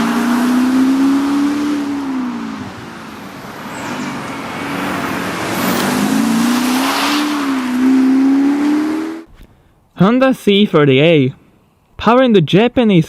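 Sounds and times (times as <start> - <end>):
diesel engine running: 0.0 - 9.3.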